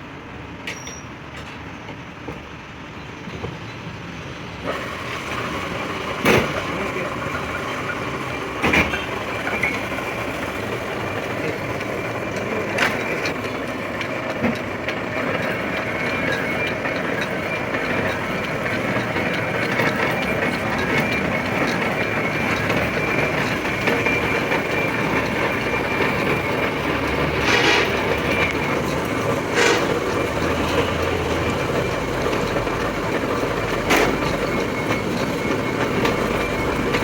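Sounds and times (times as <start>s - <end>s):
lathe cutting tool grinding metal: 5.3s - 37.0s
sharp metallic knocks: 14.3s - 31.8s.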